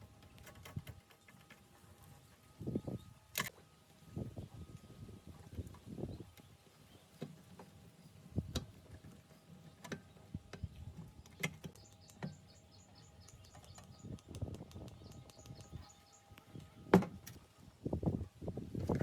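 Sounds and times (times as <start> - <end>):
faint bird chirping: 9.3 - 17.0
sharp clicks and light knocks: 9.8 - 12.6, 13.2 - 17.4.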